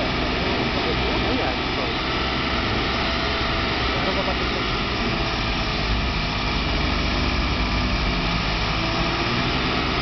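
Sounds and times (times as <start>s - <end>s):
car engines idling: 0.0s - 10.0s.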